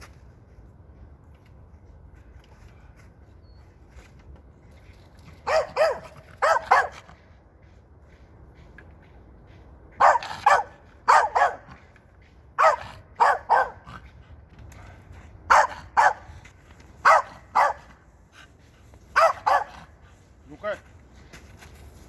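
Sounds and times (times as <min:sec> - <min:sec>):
dog barking: 0:05.4 - 0:07.1, 0:10.0 - 0:11.7, 0:12.6 - 0:13.9, 0:15.5 - 0:16.3, 0:17.0 - 0:17.9, 0:19.2 - 0:19.9.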